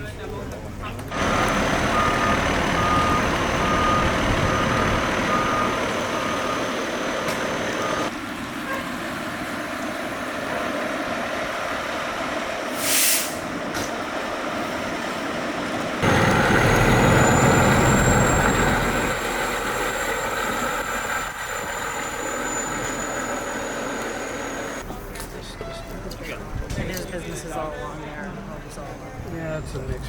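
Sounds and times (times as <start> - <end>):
heavy truck engine running: 0.6 - 12.8, 13.4 - 25.0
reversing beeper: 1.1 - 8.1, 16.0 - 24.8
short air hiss: 12.7 - 13.5.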